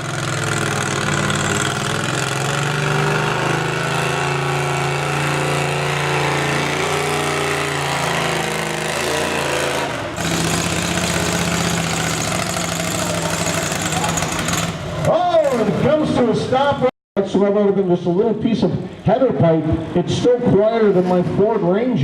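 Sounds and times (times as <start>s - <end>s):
lawn tractor engine under load: 0.0s - 16.9s.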